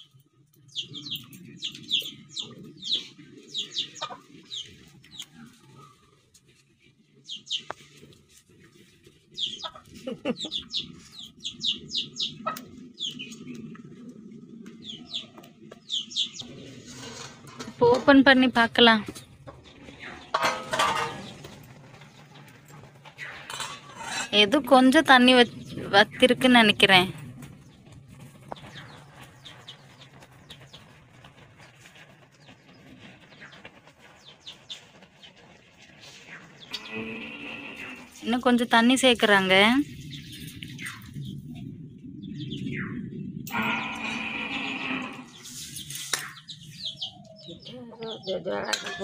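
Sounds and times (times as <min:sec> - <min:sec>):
bird chirping: 0:00.0 - 0:06.0, 0:07.2 - 0:07.8, 0:09.4 - 0:13.7, 0:14.7 - 0:16.5, 0:25.0 - 0:35.4, 0:36.1 - 0:49.0
long held bird call: 0:36.3 - 0:38.2, 0:43.5 - 0:45.6.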